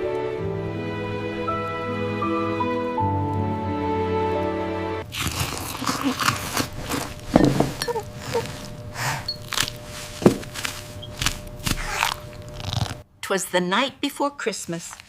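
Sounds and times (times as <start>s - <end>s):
soft background music: 0.0s - 5.4s
irregular crunching: 5.0s - 13.0s.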